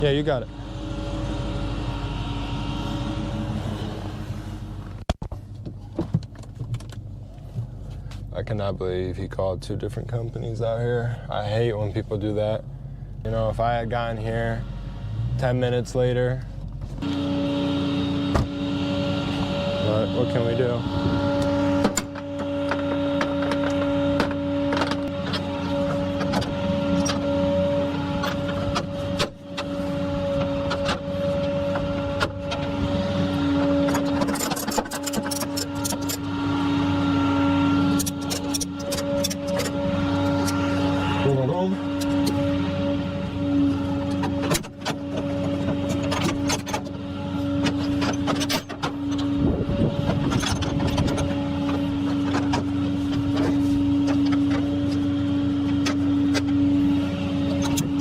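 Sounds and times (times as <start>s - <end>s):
motor whine: 0.0s - 5.0s, 17.0s - 58.0s
rattling: 21.3s - 36.6s, 37.8s - 41.1s, 43.8s - 58.0s.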